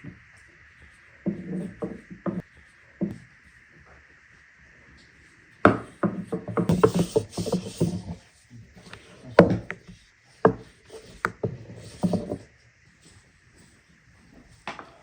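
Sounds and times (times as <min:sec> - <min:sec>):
wooden knocks and scraping: 0:05.7 - 0:08.2, 0:08.8 - 0:12.5.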